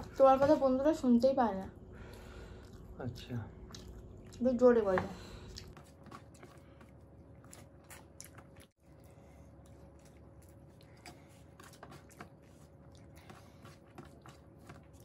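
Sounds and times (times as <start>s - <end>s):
chewing with wet mouth clicks: 2.1s - 4.4s, 5.5s - 15.0s.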